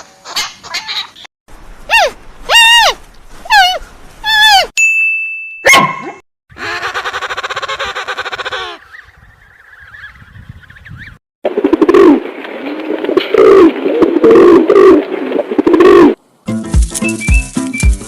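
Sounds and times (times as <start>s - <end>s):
animal call rising and falling: 1.9s - 4.7s.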